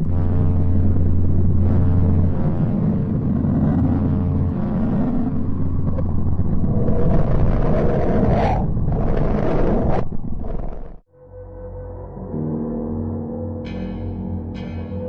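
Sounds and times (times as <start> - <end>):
dense rumbling roar: 0.0 - 11.0.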